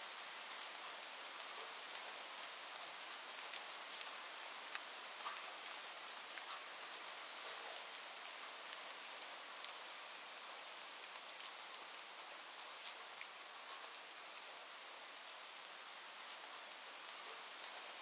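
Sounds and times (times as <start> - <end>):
rain hiss: 0.0 - 18.0
raindrop ticks: 4.7 - 5.8.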